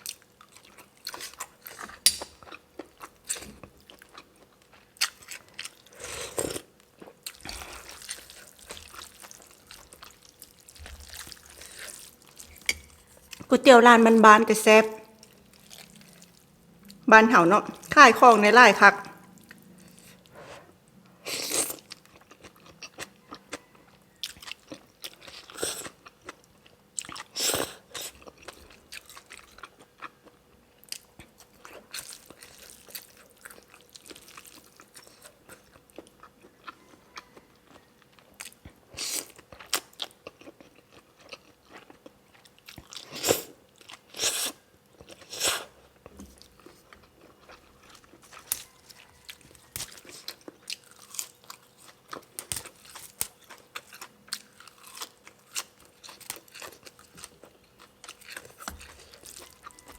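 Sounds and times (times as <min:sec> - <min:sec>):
person chewing and biting: 0:21.3 - 0:59.9.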